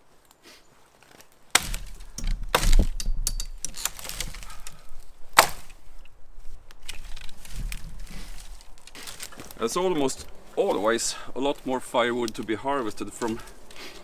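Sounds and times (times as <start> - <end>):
breaking wood and branches crackling: 0.1 - 14.0
axe striking wood: 1.5 - 4.6, 5.4 - 5.8.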